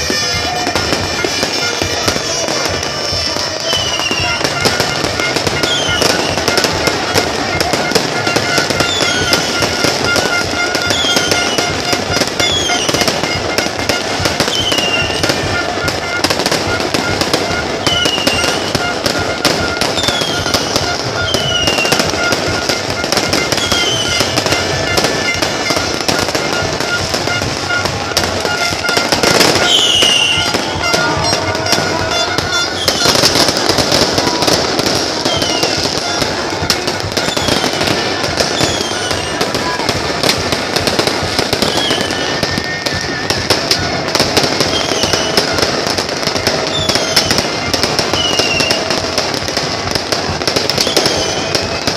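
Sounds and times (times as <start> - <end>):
falling firework whistles: 0.0 - 49.7, 50.5 - 51.9
fireworks crackling and popping: 0.0 - 51.9
loud firework burst: 0.0 - 51.9.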